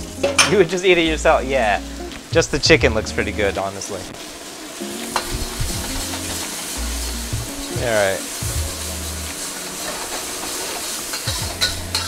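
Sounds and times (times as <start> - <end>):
food sizzling in hot oil: 0.0 - 12.0
metal spatula tossing in wok: 8.8 - 12.0.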